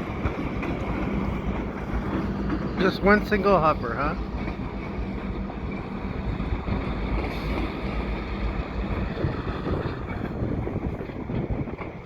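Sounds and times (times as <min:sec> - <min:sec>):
diesel locomotives running: 0:00.0 - 0:12.0
wind buffeting microphone: 0:00.0 - 0:12.0.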